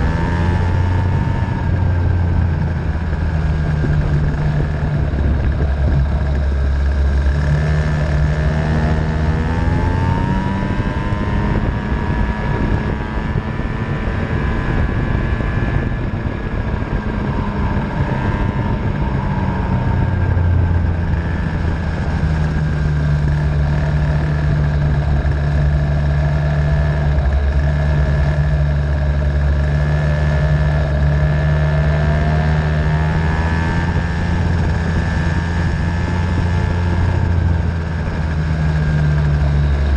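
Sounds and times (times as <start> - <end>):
racing engine revving: 0.0 - 39.9.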